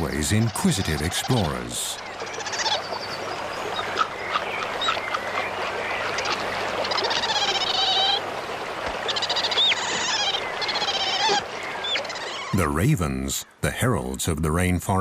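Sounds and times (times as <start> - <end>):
upward-hooked animal call: 2.2 - 2.8, 6.2 - 8.2, 9.1 - 12.6.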